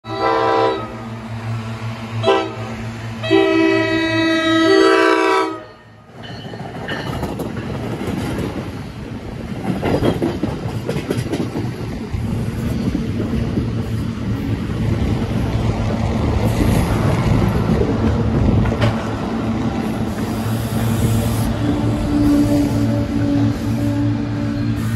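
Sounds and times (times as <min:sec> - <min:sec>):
train horn: 0:00.0 - 0:01.1, 0:02.2 - 0:06.0, 0:21.4 - 0:24.9
train rumbling past: 0:00.1 - 0:24.9
wheels clattering over rail joints: 0:06.2 - 0:14.1, 0:15.8 - 0:20.4.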